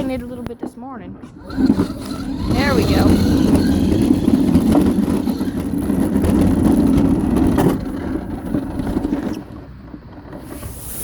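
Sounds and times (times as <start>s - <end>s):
scooter motor running: 1.2s - 9.7s.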